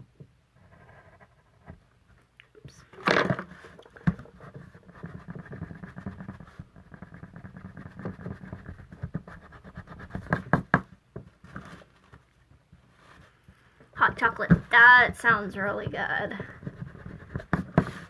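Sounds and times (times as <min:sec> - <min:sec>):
card stock rustling and rubbing: 0:03.1 - 0:13.5, 0:16.4 - 0:18.0.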